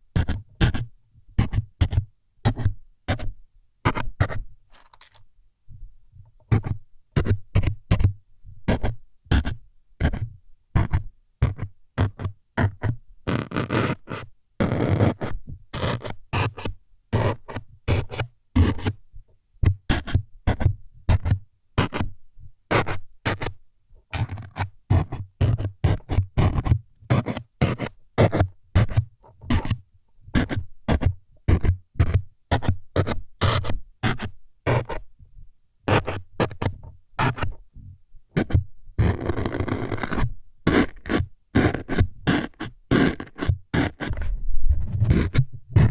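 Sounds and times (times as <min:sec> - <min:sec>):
needle jabbing scratches: 0:39.1 - 0:45.9.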